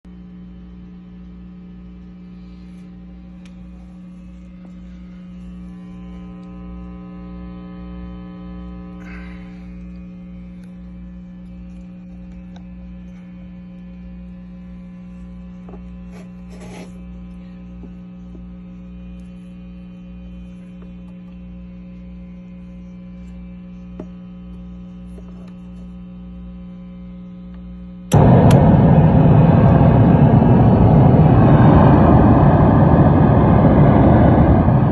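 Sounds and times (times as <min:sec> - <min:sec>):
guitar amp hum and buzz: 0:00.0 - 0:34.9
crackles and clicks: 0:09.0 - 0:14.8, 0:27.5 - 0:30.0.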